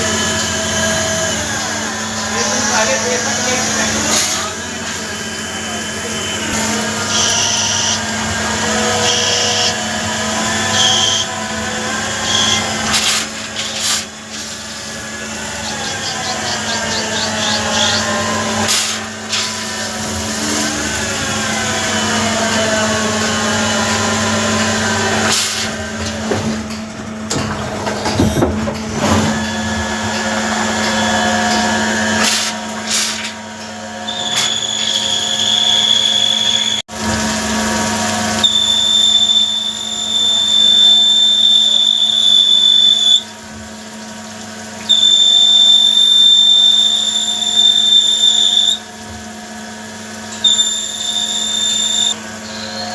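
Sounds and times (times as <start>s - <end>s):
machine tool humming: 0.0s - 52.9s
high steady whine: 50.3s - 52.9s.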